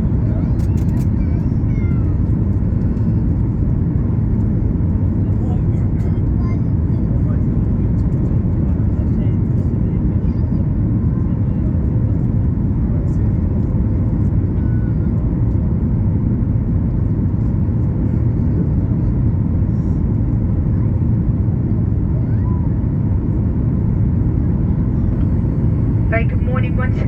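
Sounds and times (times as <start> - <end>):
airplane cabin rumble: 0.0 - 27.0.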